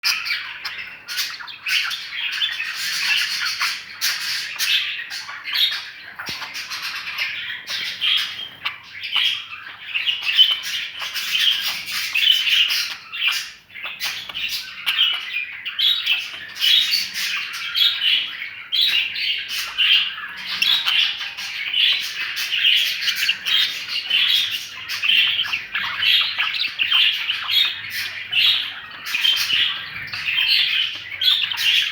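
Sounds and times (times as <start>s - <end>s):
budgies chattering and squawking: 0.0s - 31.9s.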